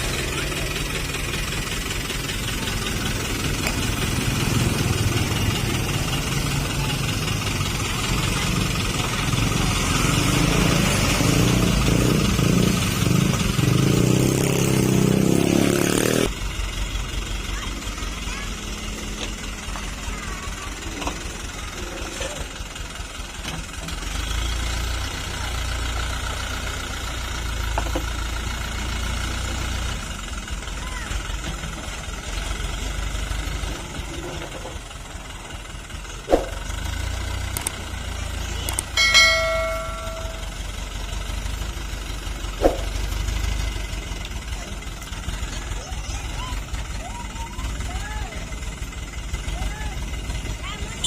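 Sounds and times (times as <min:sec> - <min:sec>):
diesel truck engine rumbling: 0:00.0 - 0:51.0
brief high tone: 0:39.0 - 0:40.6.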